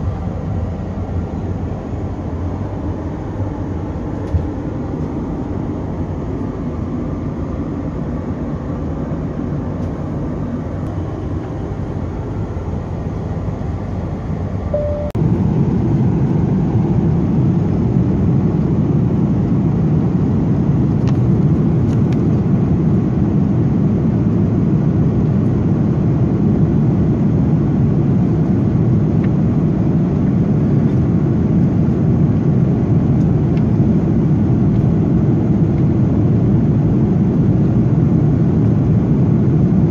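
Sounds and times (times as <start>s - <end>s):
airliner cabin engine rush: 0.0s - 39.9s
short beep: 14.7s - 15.2s.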